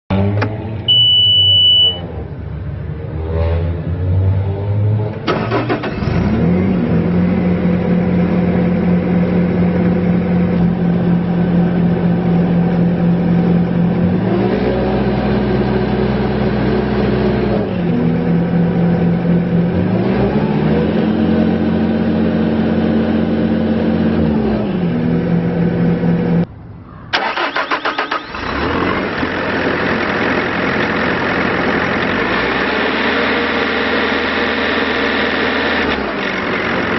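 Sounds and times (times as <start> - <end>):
diesel engine cranking and running: 5.1 - 26.5, 27.1 - 36.9.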